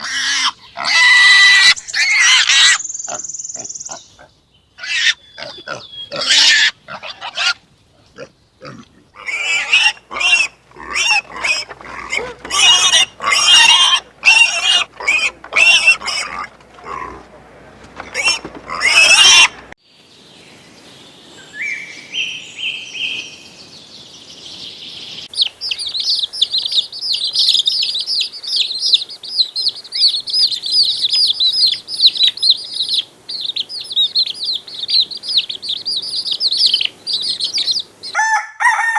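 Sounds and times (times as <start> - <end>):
animal squeals and calls: 0.0 - 4.0, 4.8 - 7.6, 8.6 - 17.2, 18.1 - 19.6
small birds chirping: 0.0 - 17.3, 19.8 - 38.2.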